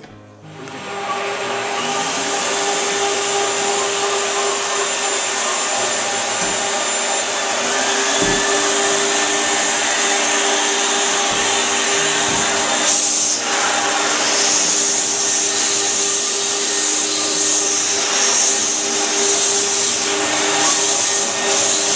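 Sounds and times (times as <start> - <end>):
floor polishing machine hissing: 0.4 - 21.9.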